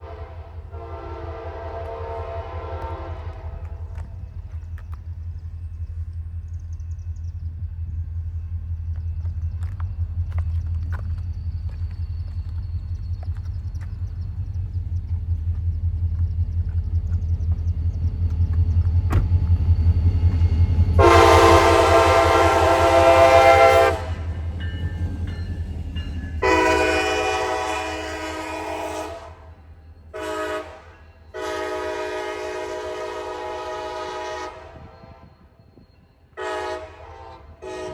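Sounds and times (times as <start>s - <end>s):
train air horn blasts: 0.0s - 4.0s, 21.0s - 24.3s, 26.4s - 35.3s, 36.3s - 37.9s
diesel locomotive engine rumbling: 0.0s - 37.9s.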